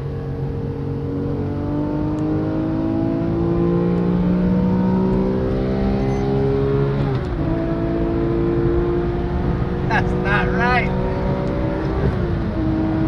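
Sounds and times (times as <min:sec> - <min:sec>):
sports car engine accelerating: 0:00.0 - 0:13.0.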